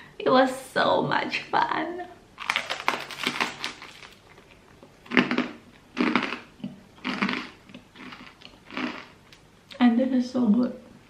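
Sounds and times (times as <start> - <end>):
crunchy toast being chewed: 2.4 - 9.4.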